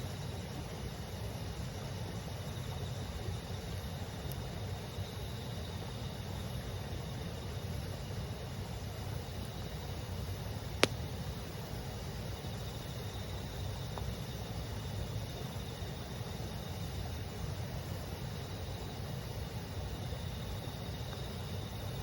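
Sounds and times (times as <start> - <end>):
insects chirring: 9.1 - 22.0
campfire wood popping: 9.4 - 15.2.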